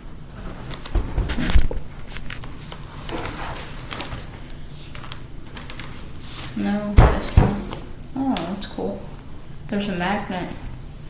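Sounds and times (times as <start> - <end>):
loud thump: 7.0 - 8.0.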